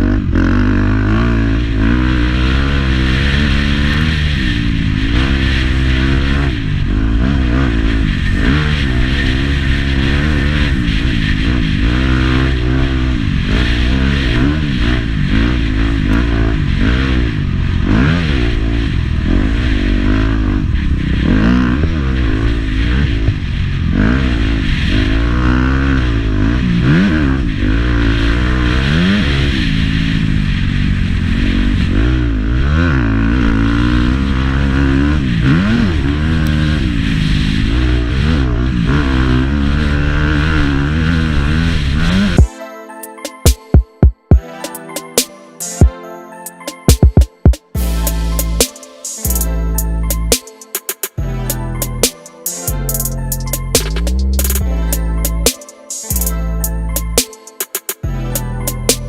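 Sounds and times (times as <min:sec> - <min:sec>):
motocross bike engine revving: 0:00.0 - 0:42.5.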